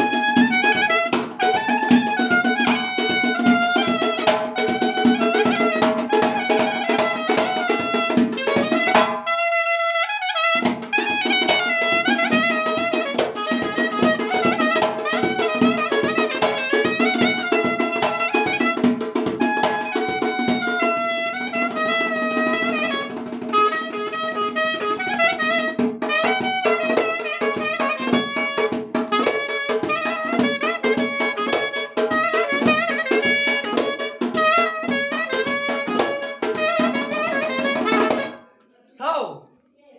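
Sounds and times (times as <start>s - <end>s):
quick drum beat: 0.0s - 9.2s, 10.6s - 38.4s.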